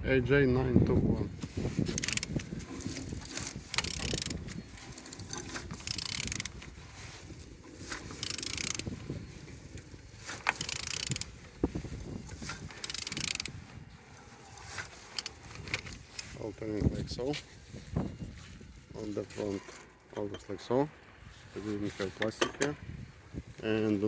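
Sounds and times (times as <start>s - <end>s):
engine pulleys and belt turning: 1.3s - 17.6s
mechanical clicks: 1.9s - 6.6s, 7.9s - 9.0s, 9.7s - 11.4s, 12.3s - 13.6s, 14.8s - 16.3s.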